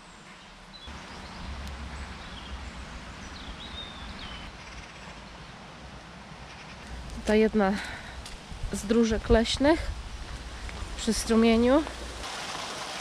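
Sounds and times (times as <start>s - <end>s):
small birds chirping: 0.0s - 5.6s
low rumble: 1.0s - 4.5s.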